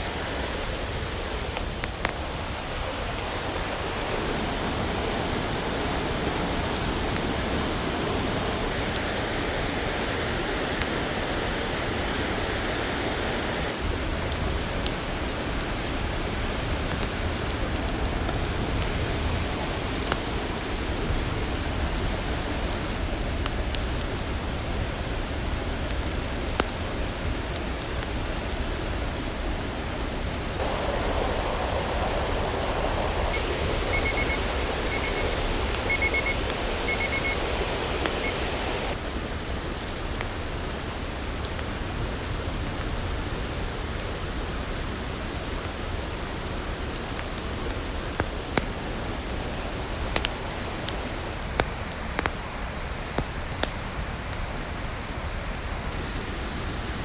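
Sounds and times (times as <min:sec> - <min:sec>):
river rushing: 0:00.0 - 0:14.1, 0:30.4 - 0:40.2.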